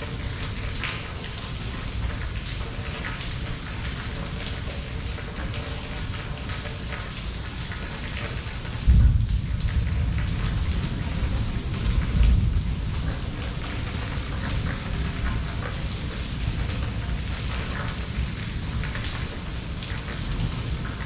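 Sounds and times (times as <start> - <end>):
raindrops ticking on surfaces: 0.0 - 21.0
steady rain falling: 0.0 - 21.0
thunder rumbling: 8.8 - 15.5.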